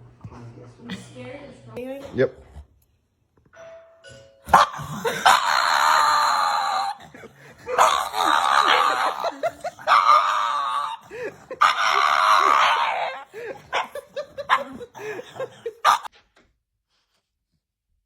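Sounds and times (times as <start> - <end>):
dog crying harshly: 4.5 - 16.1.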